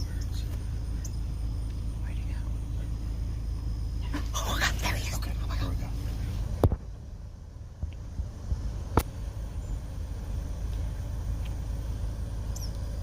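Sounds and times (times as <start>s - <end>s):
faint high bird chirp: 0.0s - 4.2s, 9.5s - 9.9s, 12.5s - 13.0s
car engine idling: 0.0s - 13.0s.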